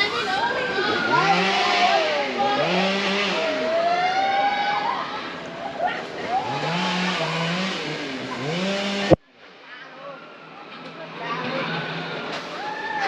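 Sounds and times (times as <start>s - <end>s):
coaster carts on metal track: 10.6s - 13.0s.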